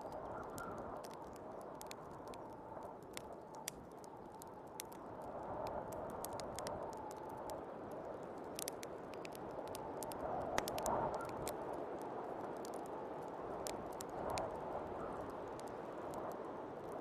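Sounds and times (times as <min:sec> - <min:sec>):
wood fire crackling and popping: 0:00.0 - 0:17.0
snowstorm wind: 0:04.4 - 0:17.0.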